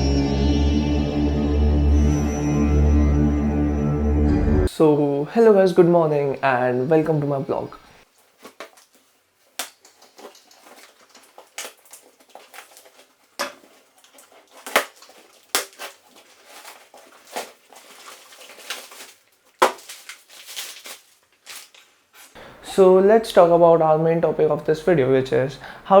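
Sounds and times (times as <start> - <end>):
crackling and crumpling: 8.1 - 22.4.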